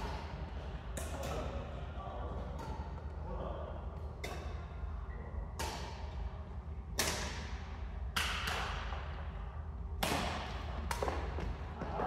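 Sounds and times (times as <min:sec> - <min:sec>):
rackets striking shuttlecock: 0:00.0 - 0:01.6, 0:02.5 - 0:03.1, 0:04.0 - 0:04.9, 0:05.5 - 0:06.3, 0:06.9 - 0:09.2, 0:10.0 - 0:11.6.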